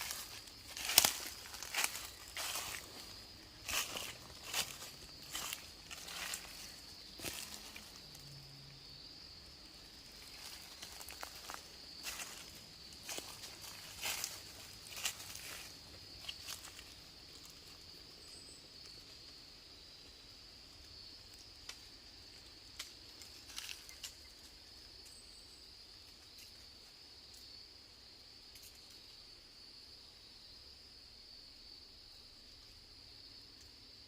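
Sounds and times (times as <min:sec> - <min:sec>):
twigs snapping underfoot: 0:00.0 - 0:08.2, 0:10.3 - 0:16.9, 0:22.7 - 0:24.2
insects chorusing: 0:00.0 - 0:34.0.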